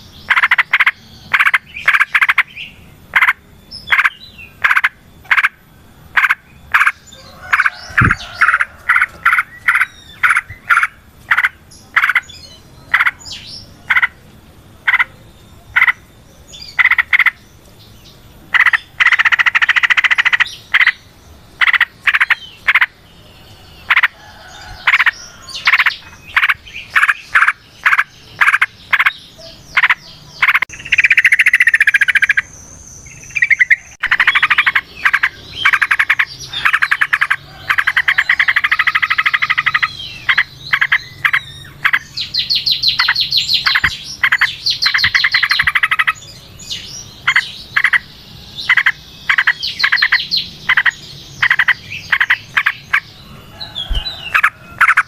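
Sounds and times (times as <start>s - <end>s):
bulbul singing: 0.0s - 55.0s.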